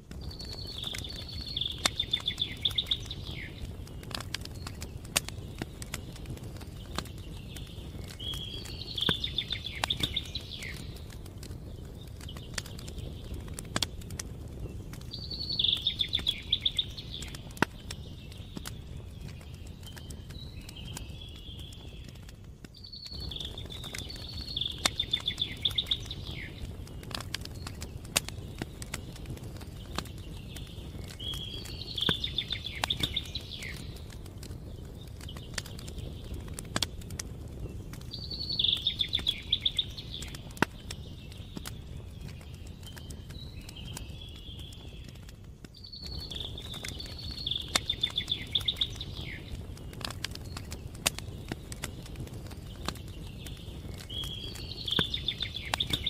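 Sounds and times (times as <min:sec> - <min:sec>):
steady low rumble: 0:00.0 - 0:22.6
campfire crackling: 0:00.0 - 0:56.0.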